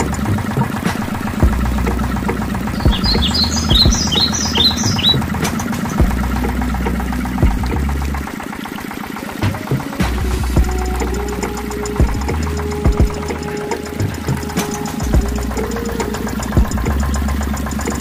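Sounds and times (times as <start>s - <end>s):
water pump engine running: 0.0s - 18.0s
bird chirping: 2.6s - 6.1s.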